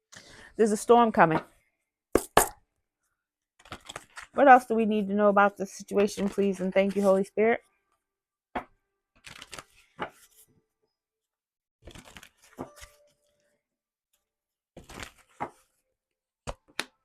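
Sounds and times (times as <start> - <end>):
cards being shuffled: 3.6 - 4.4, 6.0 - 7.3, 9.2 - 10.4, 11.9 - 13.2, 14.8 - 15.7.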